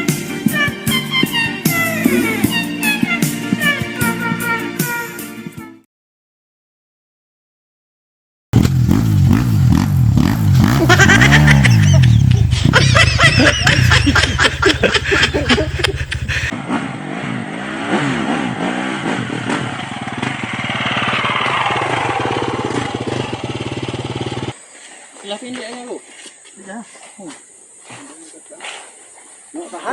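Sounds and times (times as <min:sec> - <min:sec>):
dirt bike engine revving: 0:08.6 - 0:24.6.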